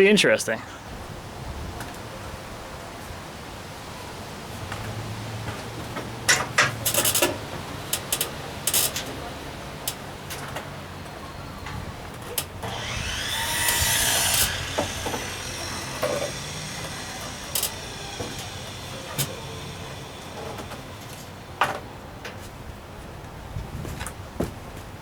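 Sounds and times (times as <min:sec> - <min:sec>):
chainsaw scraping: 0:06.3 - 0:10.2, 0:12.4 - 0:21.9
knocks and clunks: 0:11.7 - 0:22.4.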